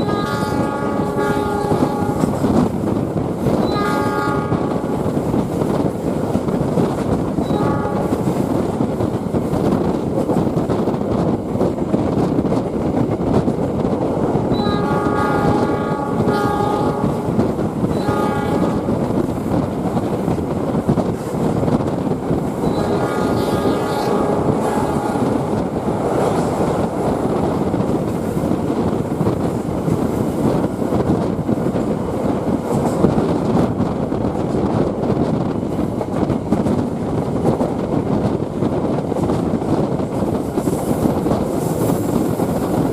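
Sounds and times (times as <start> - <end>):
locomotive horn blasts: 0.0 - 2.3, 3.6 - 4.8, 7.4 - 8.2, 14.6 - 17.3, 17.9 - 18.9, 22.6 - 25.5
train rumbling along track: 0.0 - 42.9.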